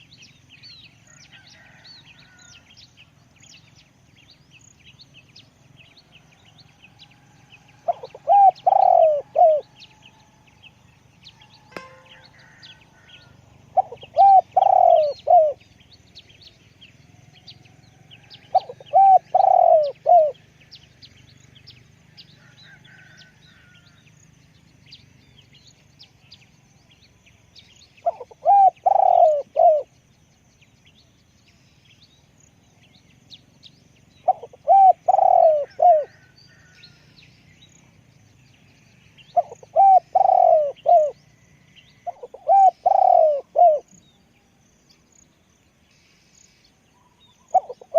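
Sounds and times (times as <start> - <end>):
small birds chirping faintly: 0.0 - 47.9
dove cooing: 7.8 - 10.1, 13.7 - 15.6, 18.4 - 20.5, 28.0 - 29.9, 34.2 - 36.7, 39.3 - 41.2, 42.0 - 44.0, 47.2 - 47.9.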